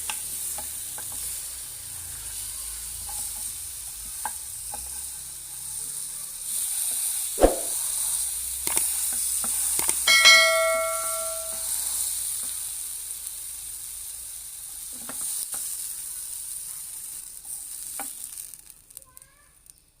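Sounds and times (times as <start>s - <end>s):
ribs sizzling: 0.0s - 20.0s
sharp knock: 7.4s - 7.8s
bright metallic ring: 10.1s - 11.8s.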